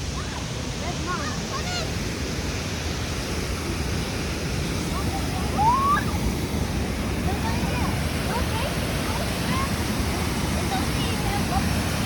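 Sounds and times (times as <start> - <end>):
water pouring over a dam: 5.2 - 12.0.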